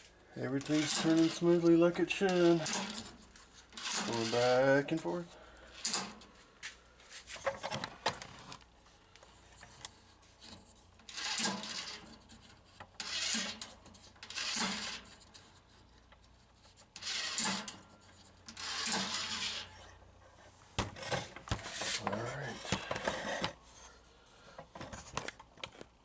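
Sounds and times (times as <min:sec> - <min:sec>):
gearbox whirring when turned by hand: 0:00.6 - 0:04.8, 0:18.4 - 0:19.9.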